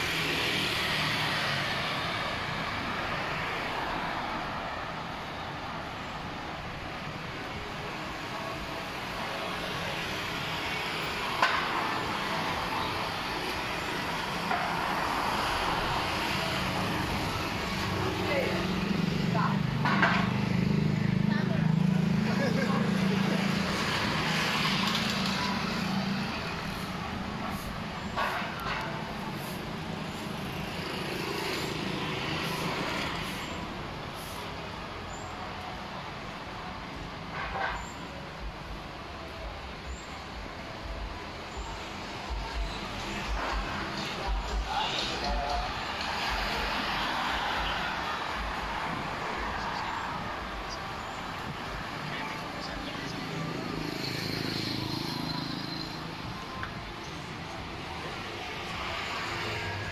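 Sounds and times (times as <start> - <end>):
passing vehicles: 0.0 - 59.9
steady traffic hum: 0.0 - 59.9.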